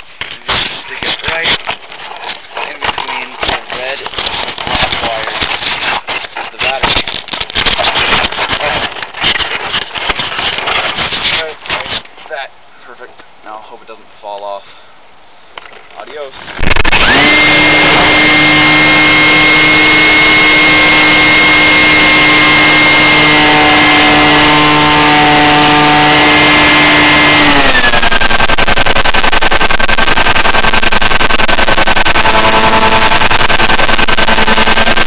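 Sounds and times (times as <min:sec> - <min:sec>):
electric motor and propeller whining: 0:16.5 - 0:35.0.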